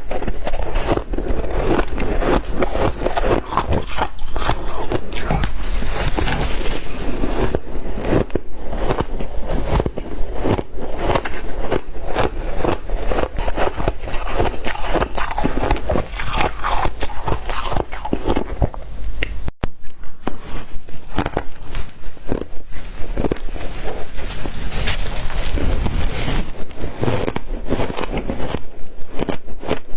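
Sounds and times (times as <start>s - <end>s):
ice crunching while chewed: 0.0s - 19.5s, 20.3s - 26.0s.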